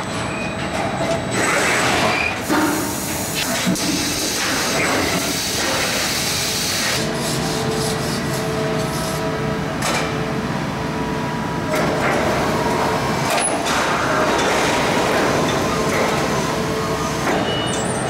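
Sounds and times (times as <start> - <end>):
machinery hiss and hum: 1.4 - 9.8.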